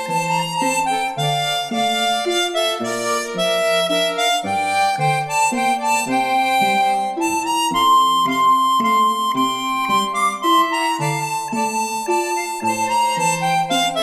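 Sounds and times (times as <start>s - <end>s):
plucked accompaniment: 0.0s - 14.0s
reedy melody: 0.0s - 14.0s.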